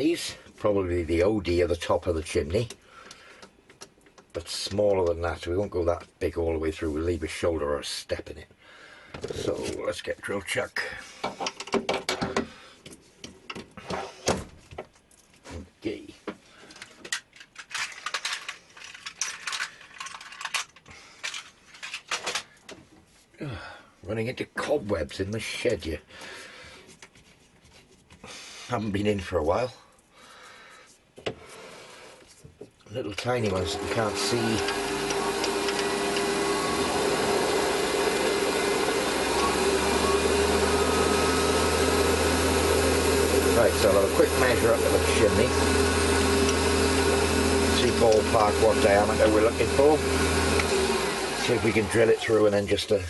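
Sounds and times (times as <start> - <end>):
electric machine running: 33.4 - 52.9.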